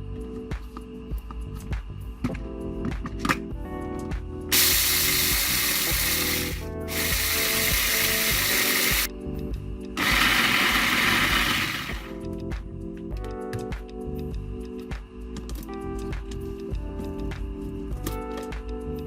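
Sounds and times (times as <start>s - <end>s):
background music: 0.0s - 19.0s
coffee machine running: 4.5s - 9.1s, 10.0s - 12.1s.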